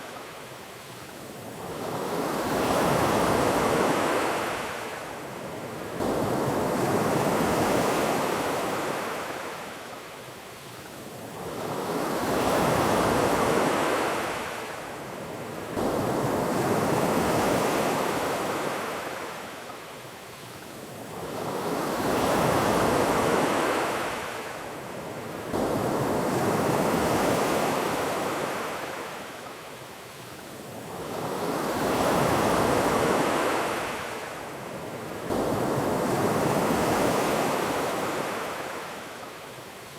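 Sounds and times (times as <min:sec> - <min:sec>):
ocean surf on a beach: 0:00.0 - 0:39.9.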